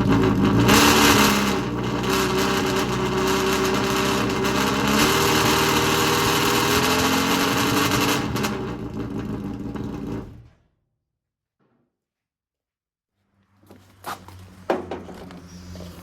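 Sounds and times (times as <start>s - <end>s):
race car engine revving: 0.0s - 10.4s.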